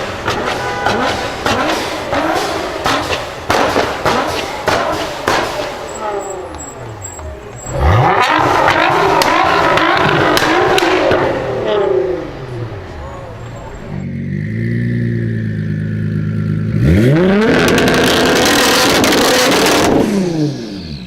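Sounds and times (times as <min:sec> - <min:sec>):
car engine revving: 0:00.0 - 0:21.0
exhaust pops and cracks: 0:00.2 - 0:05.9, 0:08.2 - 0:11.2.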